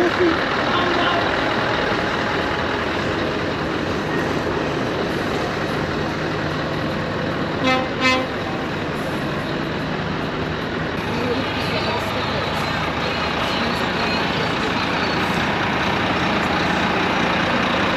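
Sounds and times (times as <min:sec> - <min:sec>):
truck engine: 0:00.0 - 0:17.9
vehicle horn toots: 0:07.6 - 0:08.4.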